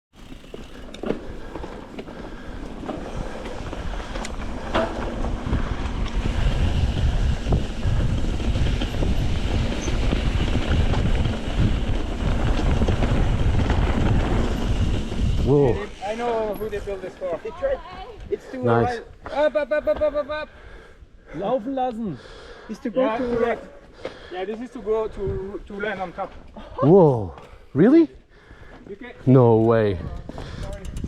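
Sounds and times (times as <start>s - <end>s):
wind buffeting microphone: 1.2s - 17.0s, 25.0s - 25.8s, 29.6s - 31.0s.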